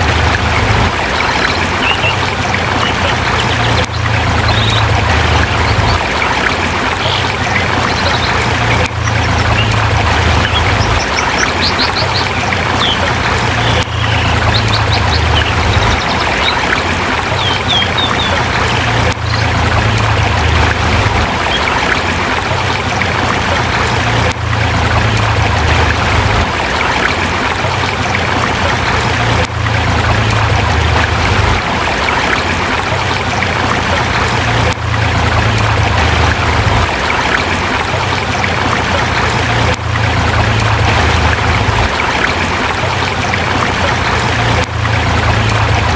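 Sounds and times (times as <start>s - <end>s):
river rushing over rocks: 0.0s - 45.9s
high bird chirps: 1.1s - 5.0s, 7.0s - 19.5s.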